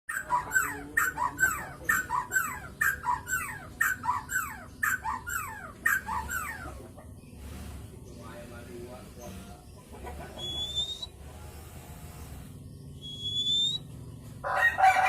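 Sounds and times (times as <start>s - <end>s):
bird calling sharp descending notes: 10.3s - 11.1s, 13.0s - 13.9s.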